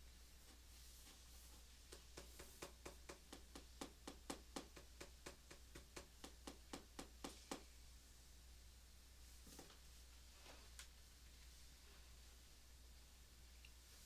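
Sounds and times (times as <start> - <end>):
pencil strokes on paper: 0.4 - 3.0.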